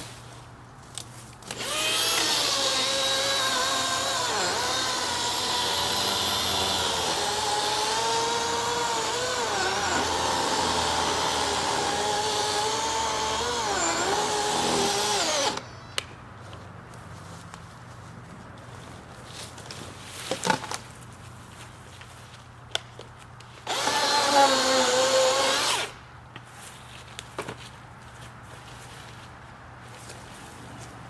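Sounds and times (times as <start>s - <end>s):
electric chainsaw cutting wood: 1.4s - 15.8s, 23.7s - 26.0s.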